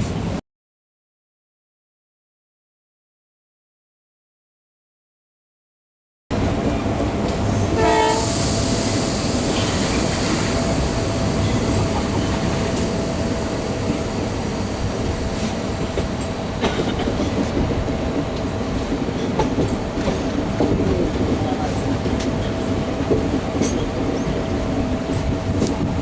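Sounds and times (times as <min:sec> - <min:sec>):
train wheels rumbling and rattling: 0:06.3 - 0:26.0.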